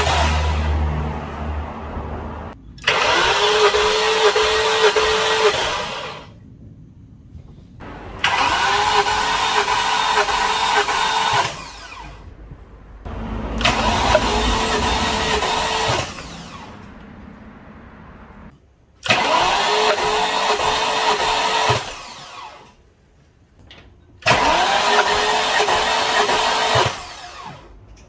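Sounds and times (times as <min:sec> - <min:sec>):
starter motor cranking engine: 0:00.0 - 0:01.0, 0:02.8 - 0:06.3, 0:07.8 - 0:18.5, 0:24.3 - 0:27.8
rising starter whine: 0:00.0 - 0:06.4, 0:07.8 - 0:18.5.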